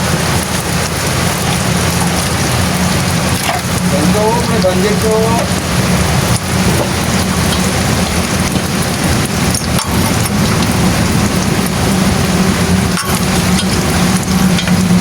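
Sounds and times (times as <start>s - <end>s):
engine hum: 0.0s - 15.0s
rain falling: 0.0s - 15.0s.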